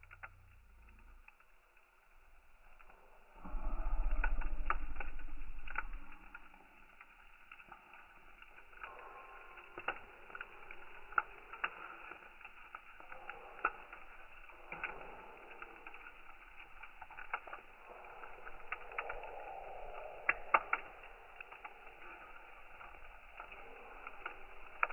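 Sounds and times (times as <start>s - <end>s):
firewood crackling and popping: 0.0s - 24.9s
loud low rumble: 2.1s - 7.0s.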